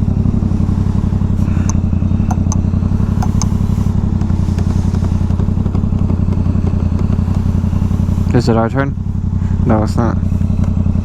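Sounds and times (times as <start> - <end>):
motorcycle engine idling: 0.0 - 11.0
light clicks: 1.4 - 2.6, 3.2 - 3.9.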